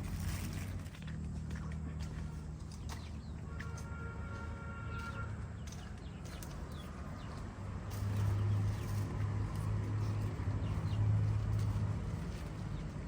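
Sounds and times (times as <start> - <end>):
birds chirping: 1.3 - 13.0.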